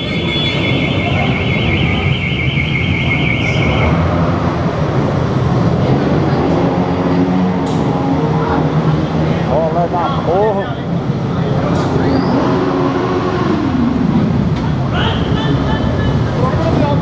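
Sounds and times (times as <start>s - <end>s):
warbling alarm: 0.0s - 4.0s
motorcycle engines running: 0.0s - 17.0s
noisy crowd: 0.0s - 17.0s.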